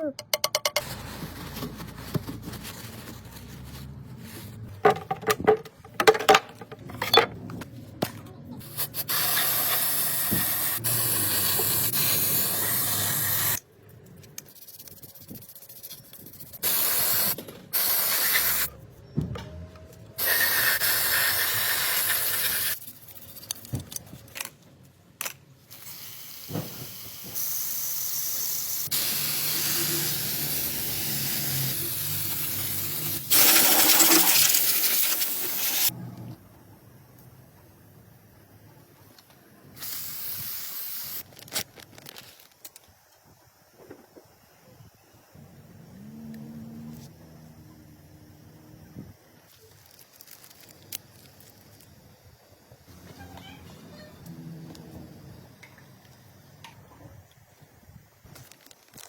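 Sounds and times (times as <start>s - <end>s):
handling clicks and knocks: 4.8s - 8.2s
pressurised spray hissing: 8.7s - 13.6s, 14.5s - 18.7s, 25.7s - 35.9s.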